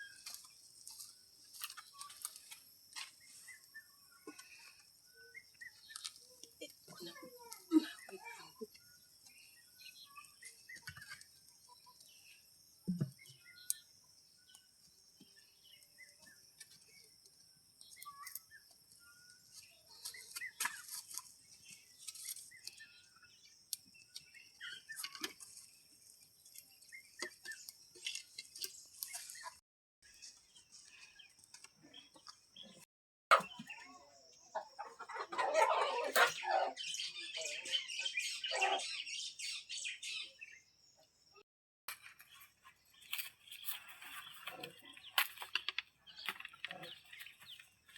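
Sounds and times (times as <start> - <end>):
bird chirps: 3.0 - 17.2, 17.8 - 41.4
chicken clucking: 33.3 - 33.8, 34.6 - 36.8
chickens squawking and calling: 33.3 - 39.9.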